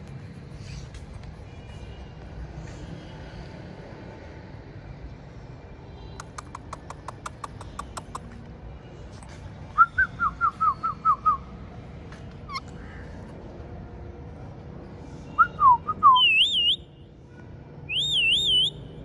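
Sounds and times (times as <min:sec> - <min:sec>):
parrot chirping: 0:12.5 - 0:12.7.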